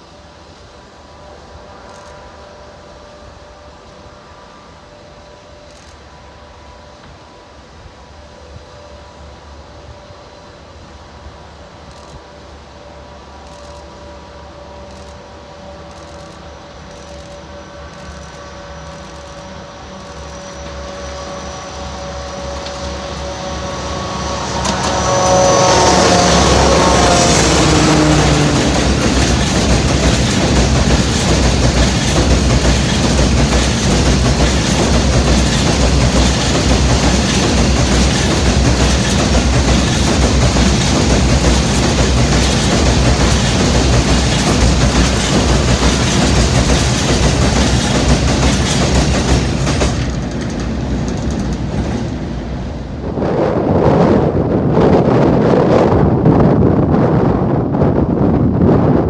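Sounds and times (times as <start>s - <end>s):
train wheels clattering over rails: 11.8s - 56.5s
wind buffeting microphone: 20.1s - 59.0s.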